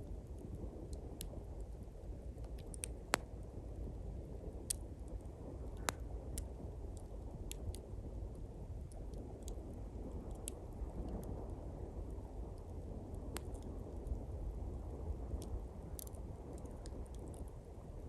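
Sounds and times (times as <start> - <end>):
twig campfire crackling and popping: 0.0 - 18.0.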